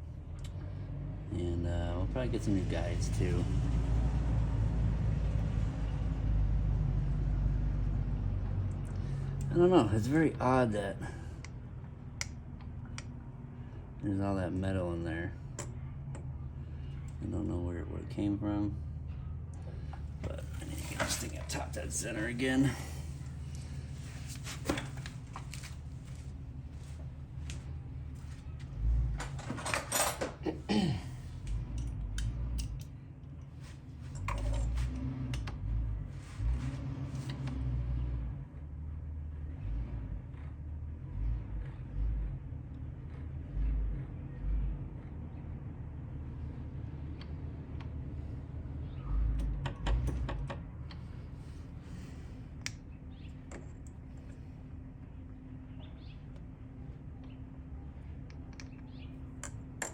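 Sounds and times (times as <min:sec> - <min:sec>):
steady low hum: 0:00.0 - 0:37.5, 0:41.7 - 0:59.9
metal tools clinking and clanking: 0:20.3 - 0:21.8, 0:29.2 - 0:30.6, 0:34.1 - 0:34.9.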